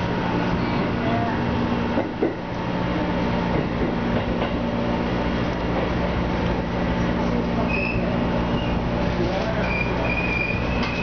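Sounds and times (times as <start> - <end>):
wheels clicking over rail joints: 9.1 - 11.0.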